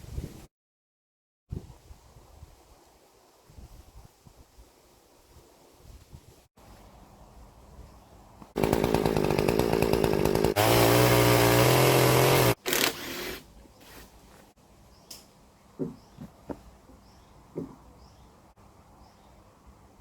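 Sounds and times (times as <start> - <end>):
chainsaw running: 8.6 - 13.4.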